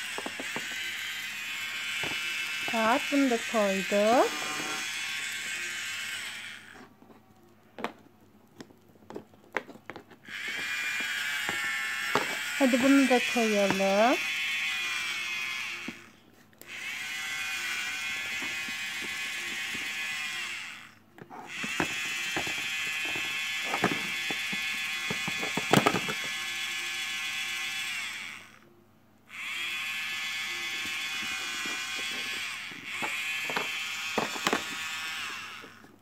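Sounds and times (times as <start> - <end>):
toy motor buzzing: 0.0 - 6.9, 10.2 - 28.7, 29.3 - 36.0
plastic pieces clicking: 21.6 - 26.3, 33.0 - 34.8.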